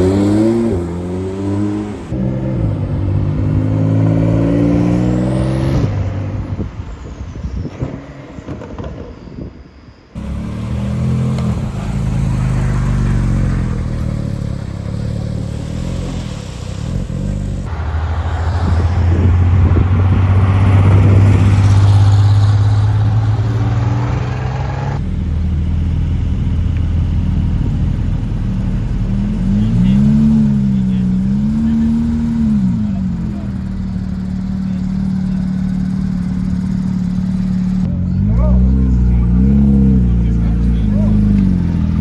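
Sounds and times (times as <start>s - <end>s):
sports car engines running: 10.2s - 42.0s.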